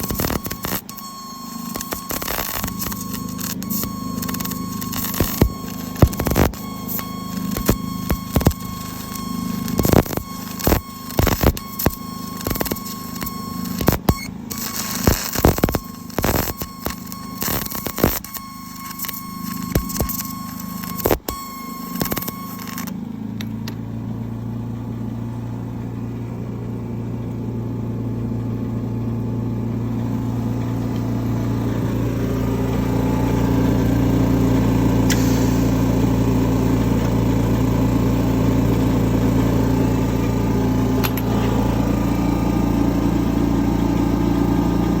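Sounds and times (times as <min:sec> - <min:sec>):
petrol engine running: 0:21.8 - 0:45.0.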